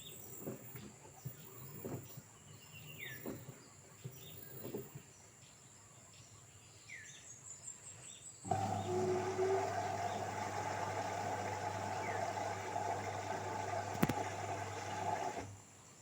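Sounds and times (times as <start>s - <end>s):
steady mechanical hum: 8.5s - 15.7s.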